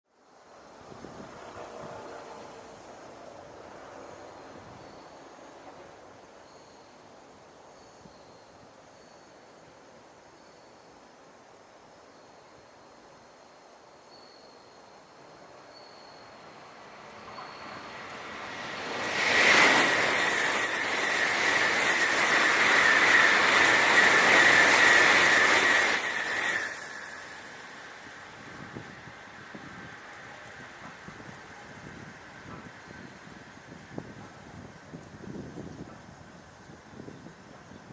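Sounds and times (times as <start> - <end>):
bullet train passing: 0.6 - 7.0, 15.1 - 37.8
insects chirping and trilling: 12.1 - 37.8
low rushing noise: 16.2 - 35.2.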